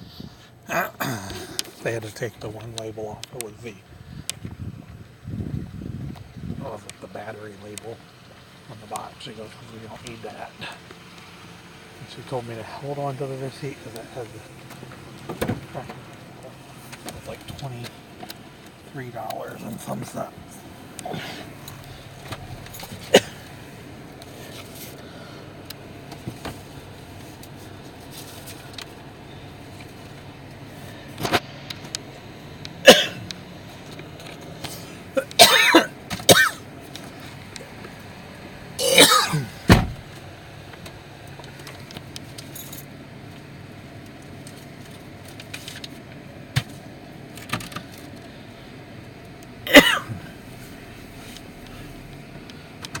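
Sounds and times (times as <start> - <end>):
person clearing throat: 0.7 - 1.6, 23.1 - 23.4, 32.9 - 33.2, 35.2 - 36.6, 38.8 - 39.5, 49.7 - 50.2
person coughing: 0.7 - 1.6, 23.0 - 23.4, 32.9 - 33.2, 35.2 - 36.6, 38.8 - 39.5, 49.7 - 50.2.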